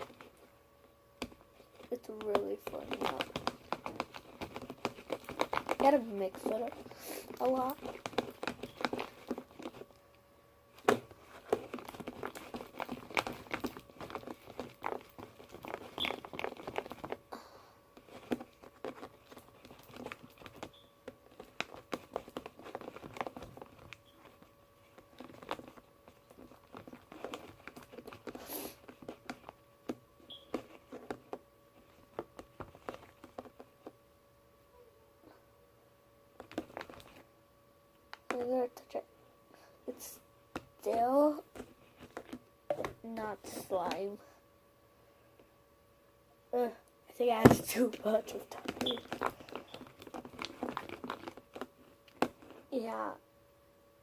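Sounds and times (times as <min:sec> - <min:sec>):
slime being stirred with clicks: 0:01.2 - 0:17.3, 0:17.9 - 0:34.0, 0:36.4 - 0:37.3, 0:40.0 - 0:44.1, 0:47.2 - 0:53.1.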